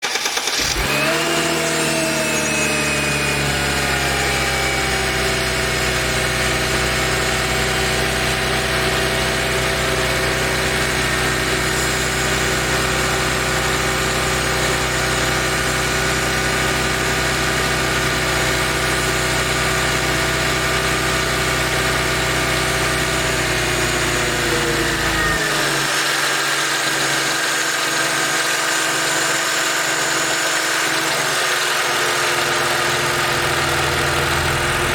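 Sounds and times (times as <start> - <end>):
engine rattling: 0.0 - 34.9
car engine idling: 31.9 - 34.9.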